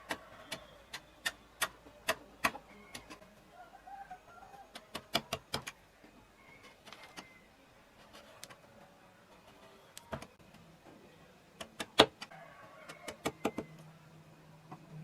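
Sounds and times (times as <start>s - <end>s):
carving tools tapping wood: 0.0s - 3.2s, 4.7s - 5.8s, 11.6s - 12.3s, 12.9s - 13.8s.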